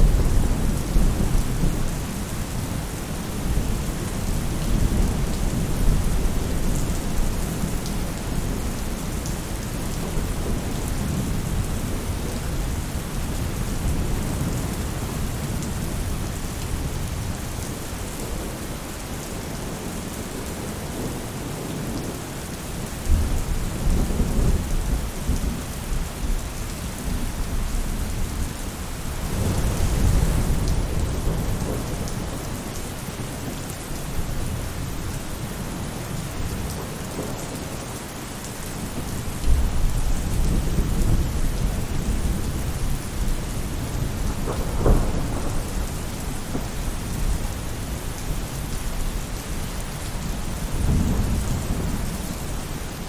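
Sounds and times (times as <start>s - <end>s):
rain falling on a roof: 0.0s - 53.0s
rolling thunder: 29.1s - 32.7s, 38.9s - 48.3s.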